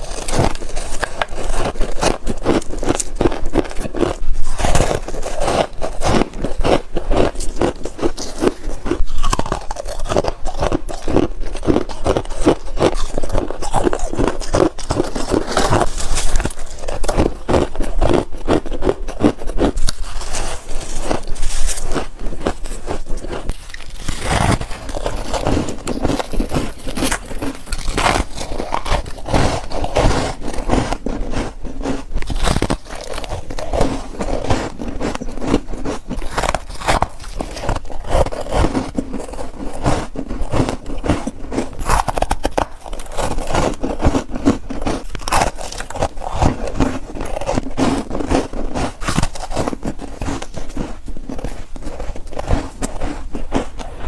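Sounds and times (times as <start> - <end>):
crunching ice chewing: 0.0 - 54.0
scraping: 19.9 - 40.0.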